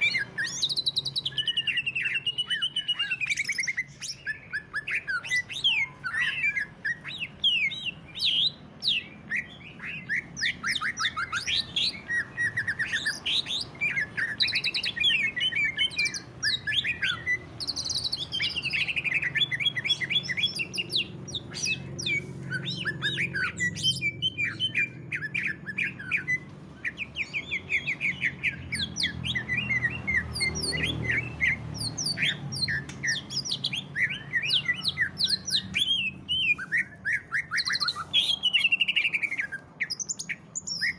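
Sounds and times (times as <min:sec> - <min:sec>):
bird singing chirps and trills: 0:00.0 - 0:40.9.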